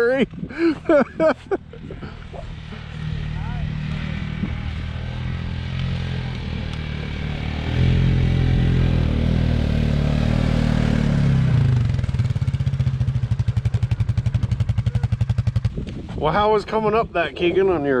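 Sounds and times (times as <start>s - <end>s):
atv engine running: 0.0s - 16.9s.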